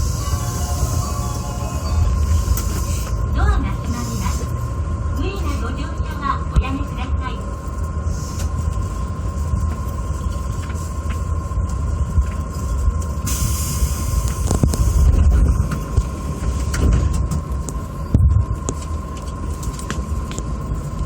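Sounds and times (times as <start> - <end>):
rail clicks: 0.0 - 7.5
train low rumble: 0.0 - 21.0.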